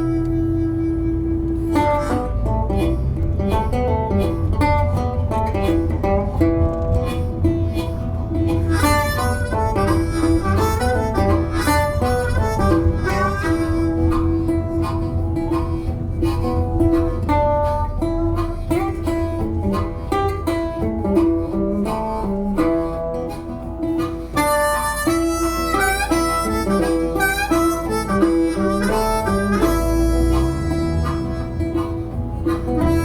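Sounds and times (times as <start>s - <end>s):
harmonica: 0.0s - 33.0s
plucked acoustic guitar: 0.0s - 33.0s.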